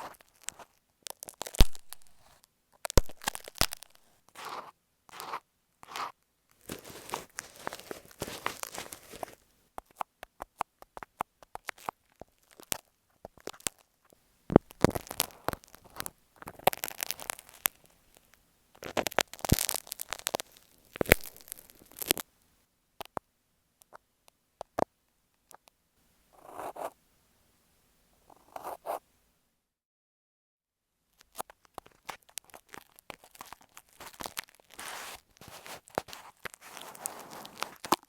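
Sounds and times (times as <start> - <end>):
scratchy rubbing on microphone: 0.0 - 0.7, 3.7 - 9.4, 34.0 - 38.0.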